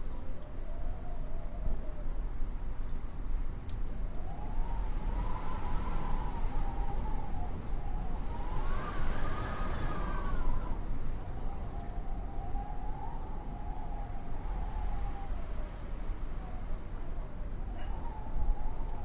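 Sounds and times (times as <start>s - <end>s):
wind howling: 4.1s - 19.0s.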